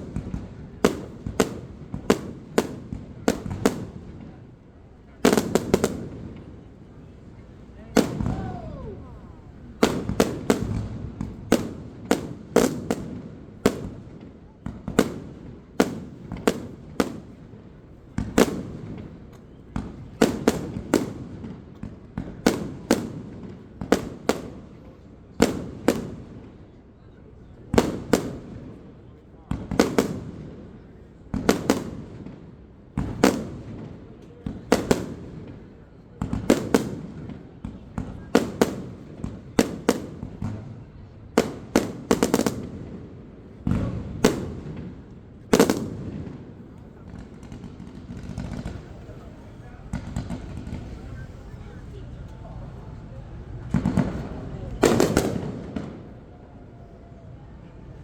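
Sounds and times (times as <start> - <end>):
fireworks bursting with echo: 0.0 - 57.9
deep fireworks boom: 43.6 - 56.4.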